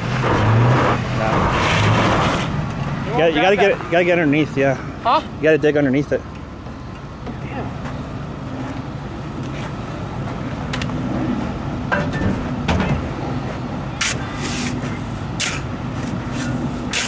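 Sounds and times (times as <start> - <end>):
truck engine revving: 0.0 - 4.7.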